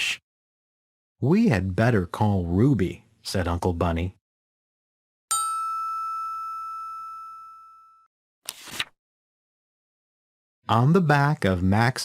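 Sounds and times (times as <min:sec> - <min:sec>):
bell-like ding: 0:05.3 - 0:08.1.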